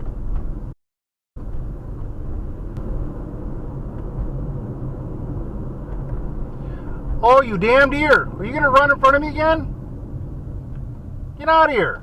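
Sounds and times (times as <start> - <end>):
car road and engine rumble: 0.0 - 0.8, 1.4 - 12.0.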